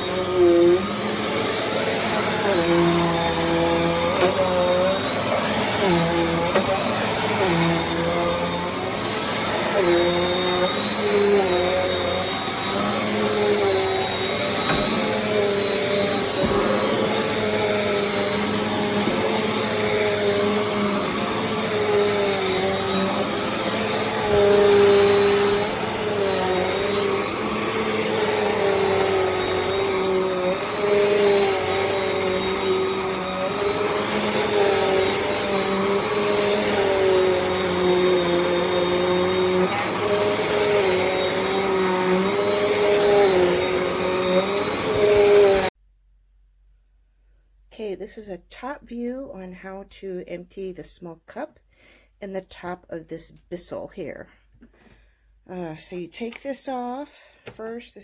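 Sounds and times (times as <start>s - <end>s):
vacuum cleaner running: 0.0s - 45.8s.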